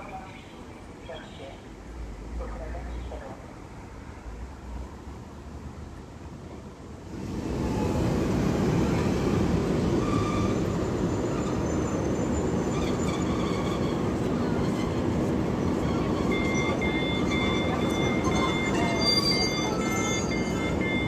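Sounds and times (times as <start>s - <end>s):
train rail rumble: 0.0s - 21.0s.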